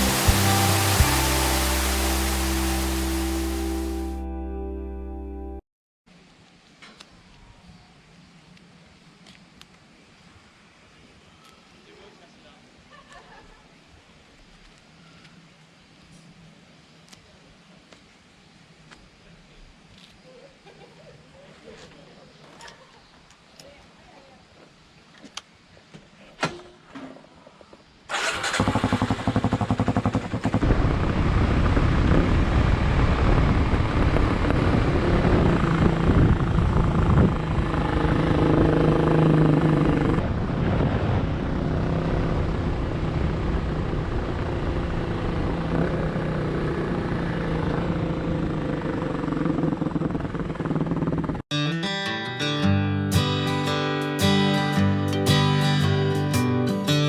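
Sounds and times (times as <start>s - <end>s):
motorcycle engine running: 28.4s - 40.4s, 41.5s - 51.4s.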